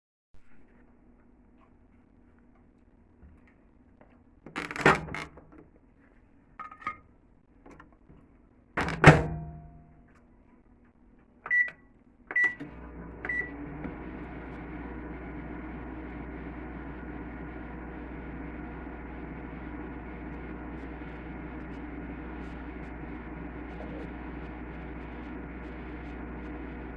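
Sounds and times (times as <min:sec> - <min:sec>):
microwave door clunks: 0:08.8 - 0:09.8
microwave oven humming: 0:08.8 - 0:10.1, 0:11.5 - 0:26.9
keypad beeps: 0:11.5 - 0:12.6.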